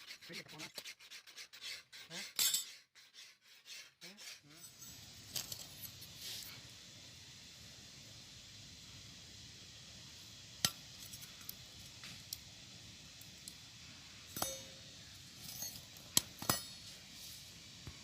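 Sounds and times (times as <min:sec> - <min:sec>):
sharp metallic clinks and taps: 0:14.3 - 0:14.8.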